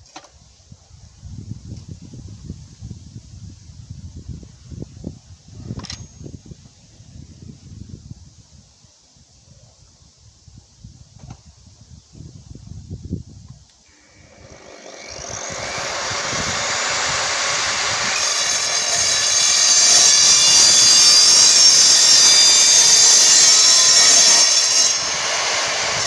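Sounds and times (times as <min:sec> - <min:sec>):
miter saw cutting: 0:13.9 - 0:26.0.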